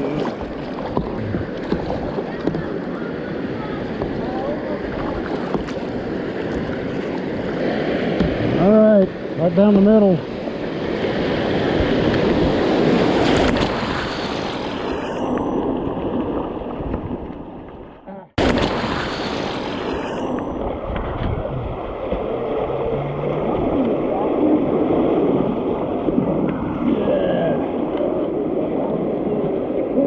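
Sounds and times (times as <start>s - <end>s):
river water rushing and splashing: 0.0s - 30.0s
wind buffeting microphone: 20.6s - 29.5s.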